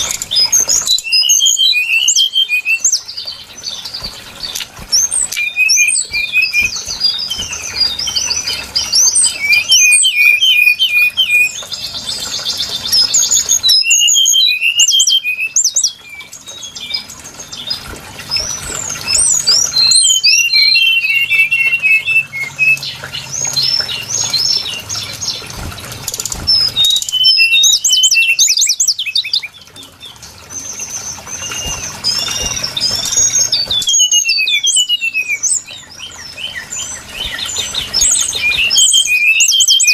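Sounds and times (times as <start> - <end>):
bird song chirps and trills: 0.0 - 39.9.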